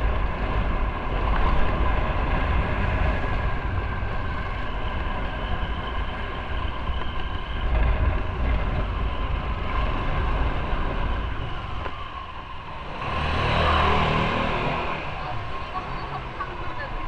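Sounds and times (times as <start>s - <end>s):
motorcycle engine cruising: 0.0s - 17.0s
wind rumbling on microphone: 0.0s - 17.0s.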